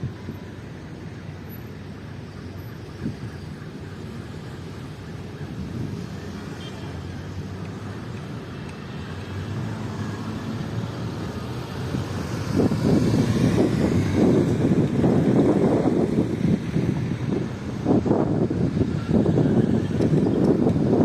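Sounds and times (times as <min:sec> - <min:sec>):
wind rumbling against microphone: 0:08.8 - 0:21.0.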